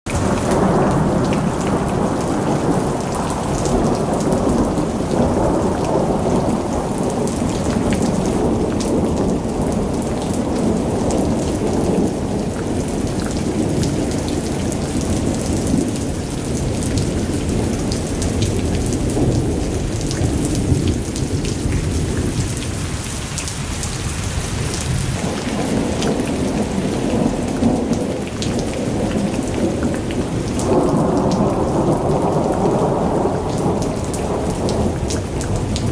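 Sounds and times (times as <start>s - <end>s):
heavy rain: 0.0s - 35.9s
thunder rumbling: 0.1s - 35.9s.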